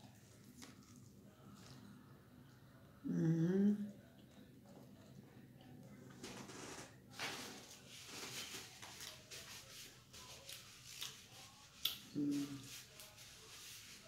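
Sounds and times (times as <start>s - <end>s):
paper napkin rustling: 6.2s - 14.0s.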